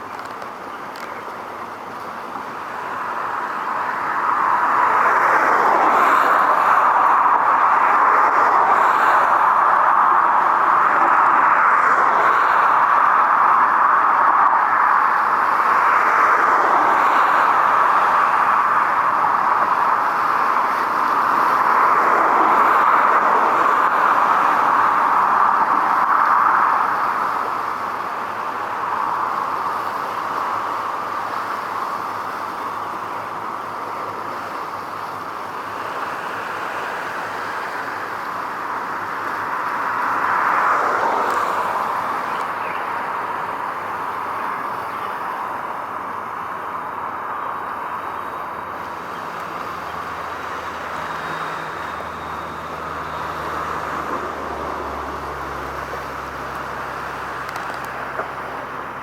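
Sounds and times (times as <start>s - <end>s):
passing traffic rushing: 0.0s - 59.0s
vehicle going by: 48.9s - 59.0s.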